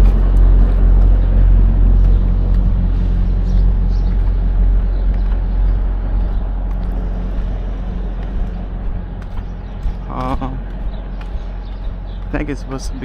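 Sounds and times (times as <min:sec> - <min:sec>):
truck diesel engine idling: 0:00.0 - 0:12.9.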